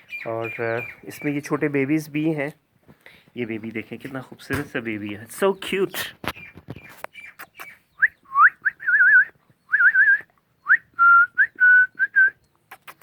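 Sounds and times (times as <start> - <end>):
person whistling: 8.0 - 12.4.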